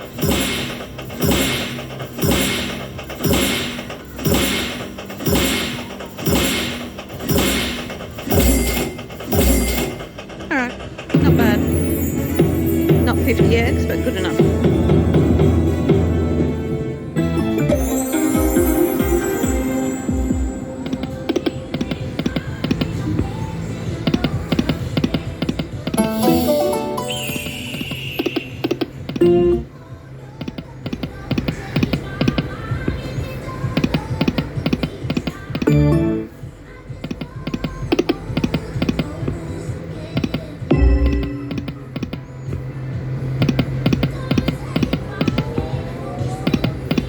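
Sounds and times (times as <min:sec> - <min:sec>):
stepped chiming tones: 0:00.0 - 0:16.6, 0:17.2 - 0:21.7, 0:26.0 - 0:29.7
steady high beep: 0:26.0 - 0:29.6.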